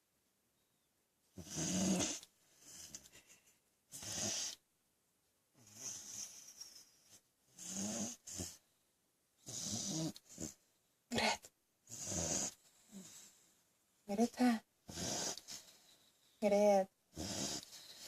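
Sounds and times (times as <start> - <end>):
dog snoring: 1.4 - 3.0, 3.9 - 4.6, 5.6 - 6.9, 7.5 - 8.6, 9.4 - 10.6, 11.9 - 13.3, 14.9 - 15.7, 17.1 - 18.0.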